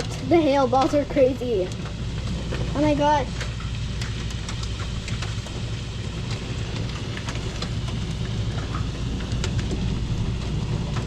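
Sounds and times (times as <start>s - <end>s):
hailstones ticking on hard surfaces: 0.0s - 11.0s
rain and hail pouring down: 0.0s - 11.0s
steady low rumble: 0.0s - 11.0s.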